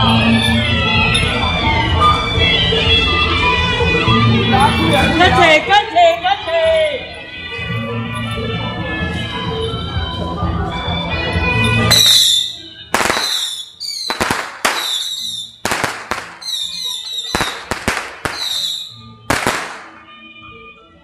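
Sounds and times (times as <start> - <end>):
high wavering whistle: 11.9 - 15.6, 16.4 - 19.1
firecrackers banging: 11.9 - 20.2.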